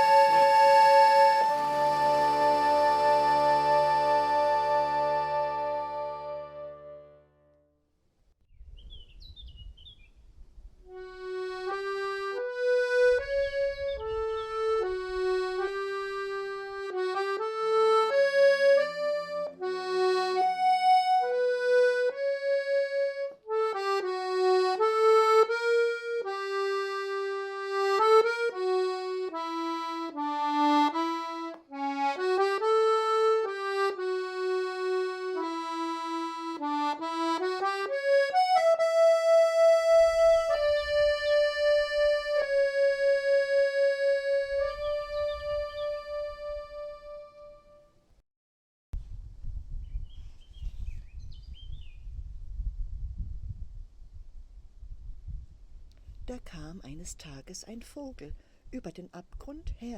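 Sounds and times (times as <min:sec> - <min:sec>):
reedy accordion-like melody: 0:00.0 - 0:07.6, 0:10.9 - 0:48.0.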